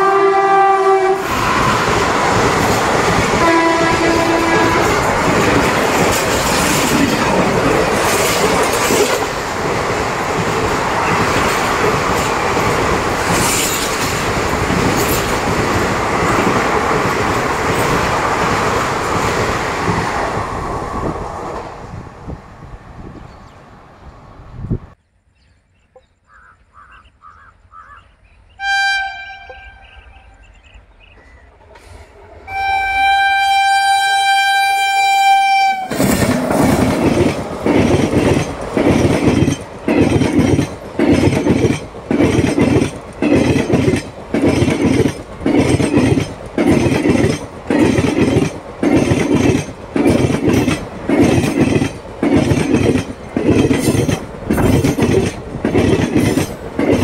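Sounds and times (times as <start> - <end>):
locomotive air horn: 0.0 - 2.4, 3.4 - 5.3, 28.6 - 30.0, 32.5 - 36.1
train wheels clattering: 1.2 - 20.5, 35.8 - 57.0.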